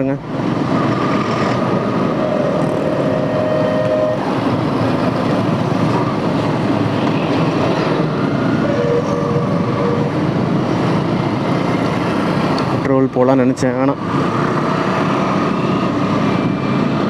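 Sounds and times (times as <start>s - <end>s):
city traffic noise: 0.0s - 17.0s
motorcycle engine: 0.3s - 13.0s, 14.0s - 17.0s
held tone: 2.1s - 4.8s, 7.8s - 10.7s.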